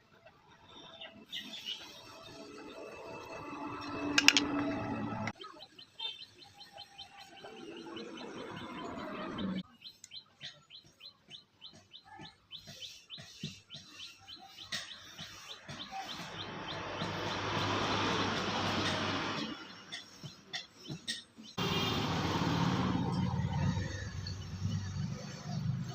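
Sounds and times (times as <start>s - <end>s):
bird chirping: 5.4s - 17.8s.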